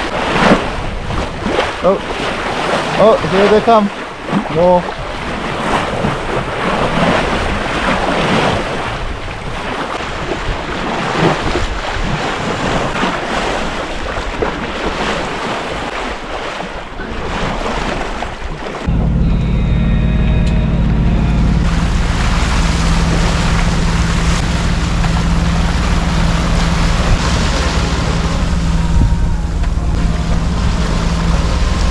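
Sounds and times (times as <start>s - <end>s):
rushing sea water: 0.0s - 31.9s
wind: 0.0s - 31.9s
wind buffeting microphone: 17.0s - 31.9s
boat engine drone: 18.8s - 31.9s.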